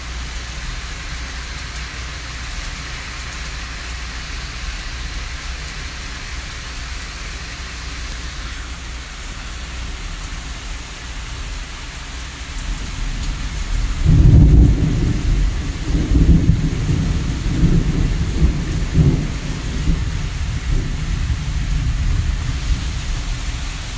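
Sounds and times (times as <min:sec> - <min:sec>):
steady rain: 0:00.0 - 0:23.9
thunder rumbling: 0:12.4 - 0:23.9.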